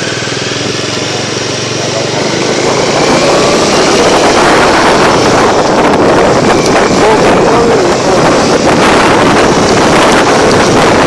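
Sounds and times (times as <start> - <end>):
motorcycle engine running: 0.0 - 11.0
wind noise on microphone: 0.0 - 11.0.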